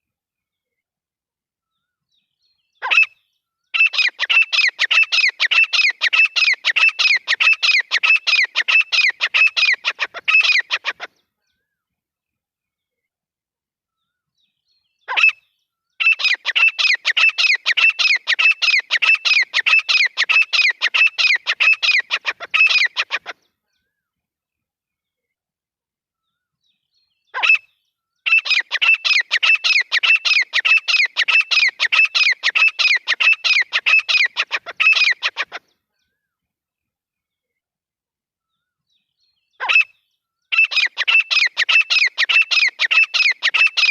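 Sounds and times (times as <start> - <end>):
francolin calling: 3.8 - 11.1, 28.3 - 35.6, 39.6 - 43.9.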